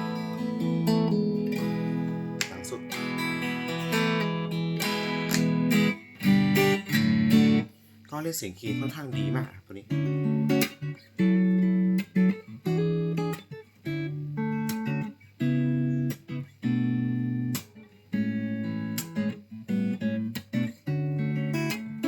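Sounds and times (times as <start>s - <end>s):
clean electric guitar chords: 0.0s - 7.7s, 8.8s - 17.5s.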